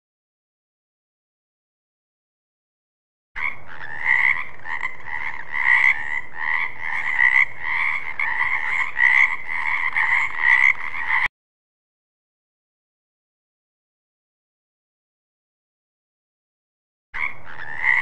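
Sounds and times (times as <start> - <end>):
frogs croaking: 3.4 - 11.3, 17.2 - 18.0.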